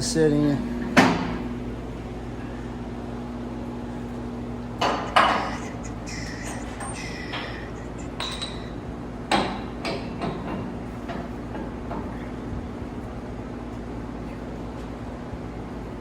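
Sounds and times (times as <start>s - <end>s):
steady low hum: 0.0s - 16.0s
metal tools clanking: 6.4s - 8.8s.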